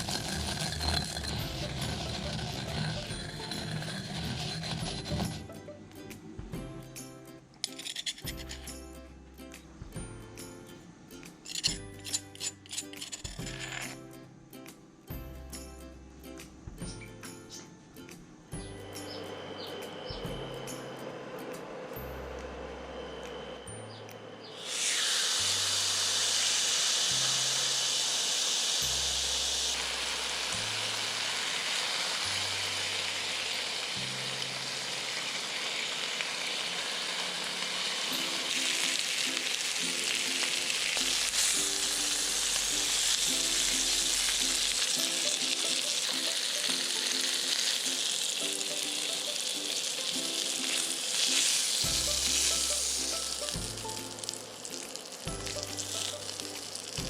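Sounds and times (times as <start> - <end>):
background music: 0.0 - 34.7, 37.8 - 57.0
meat sizzling on a grill: 24.6 - 57.0.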